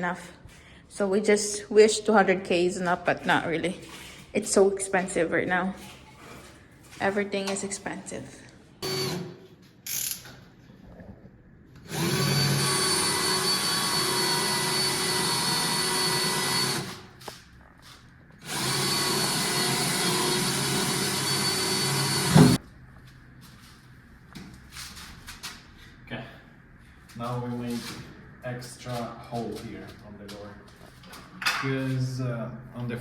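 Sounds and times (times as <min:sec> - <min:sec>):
power drill boring into wood: 0:11.8 - 0:17.0, 0:18.4 - 0:22.6.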